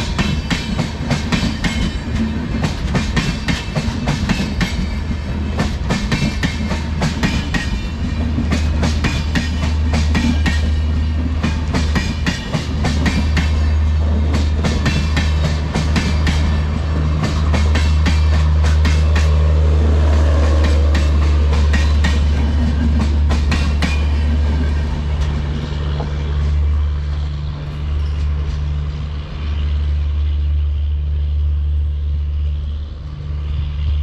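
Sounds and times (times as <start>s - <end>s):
train wheels clattering over rail joints: 0.0s - 19.6s, 20.2s - 26.6s
low train rumble: 0.0s - 34.0s.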